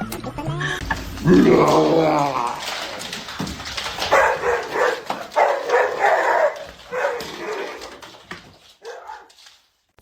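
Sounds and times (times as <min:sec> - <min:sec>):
dog barking: 0:04.1 - 0:07.8, 0:08.8 - 0:09.4.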